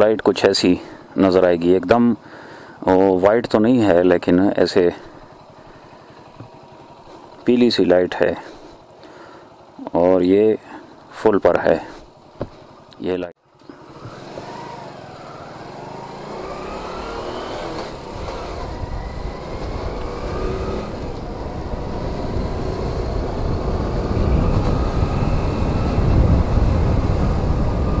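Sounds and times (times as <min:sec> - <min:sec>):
motorcycle engine accelerating: 0:03.8 - 0:07.9, 0:13.5 - 0:28.0
rising engine whine: 0:13.7 - 0:28.0.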